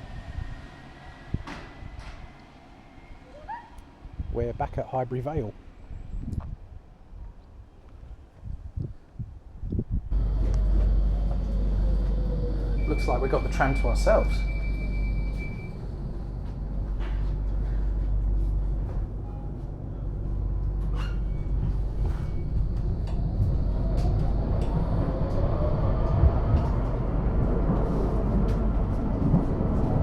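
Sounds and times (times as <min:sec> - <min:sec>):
tram running rumble: 0:00.0 - 0:03.3, 0:09.9 - 0:30.0
traction motor whine rising: 0:10.1 - 0:18.8, 0:20.6 - 0:29.2.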